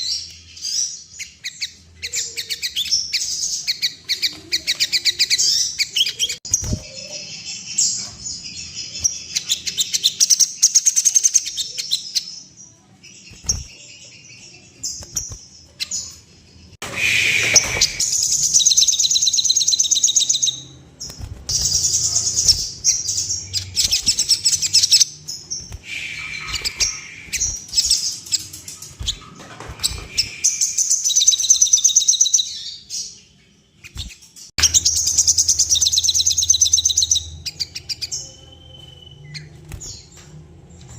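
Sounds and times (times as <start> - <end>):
bird twittering trills: 13.1 - 40.9.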